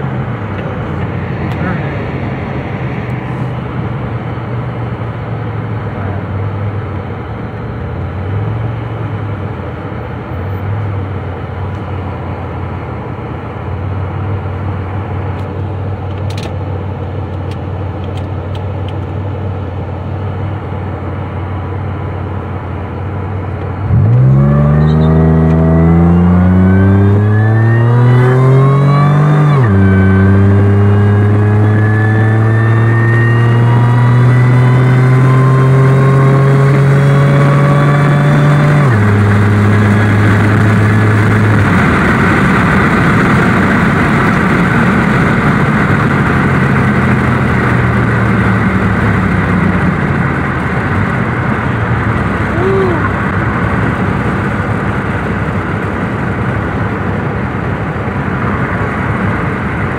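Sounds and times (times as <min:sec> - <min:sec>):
car engine revving: 0:00.0 - 0:06.2, 0:21.3 - 0:59.9
high whine: 0:00.0 - 0:16.1, 0:19.0 - 0:59.9.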